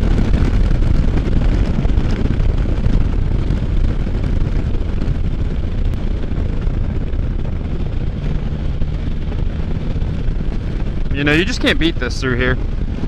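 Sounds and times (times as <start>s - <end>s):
engine running at road speed: 0.0s - 13.0s
wind rushing over microphone: 0.0s - 13.0s.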